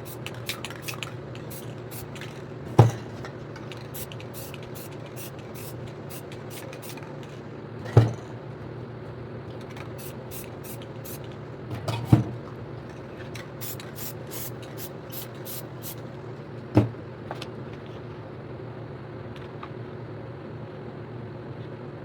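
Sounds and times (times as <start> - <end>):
spray paint can hissing: 0.0 - 2.4, 3.7 - 7.2, 9.9 - 11.4, 13.6 - 16.0
steady low hum: 0.0 - 19.3.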